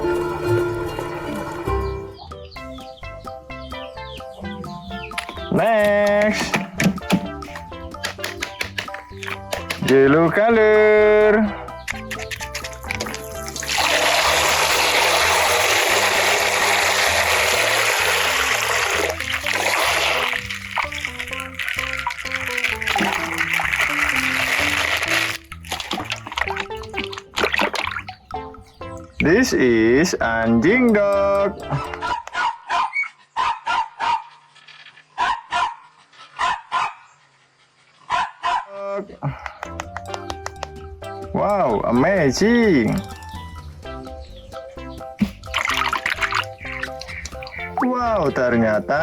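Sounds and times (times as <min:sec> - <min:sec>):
background music with bass melody: 0:00.0 - 0:32.4, 0:39.2 - 0:49.0
water running: 0:04.9 - 0:30.0, 0:45.2 - 0:49.0
dog barking: 0:31.8 - 0:34.6, 0:35.2 - 0:37.2, 0:38.0 - 0:38.8.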